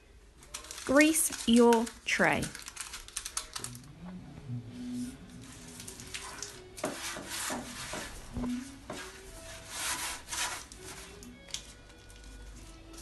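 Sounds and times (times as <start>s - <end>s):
hand rubbing baking tray: 4.1s - 11.1s.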